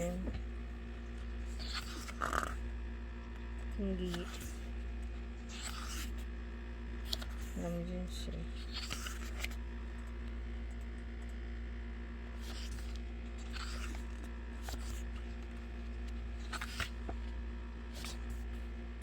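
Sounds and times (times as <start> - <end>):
steady low hum: 0.0 - 19.0
paper and card rustling: 1.2 - 2.6, 4.0 - 4.7, 5.4 - 6.3, 7.1 - 9.6, 12.4 - 18.6.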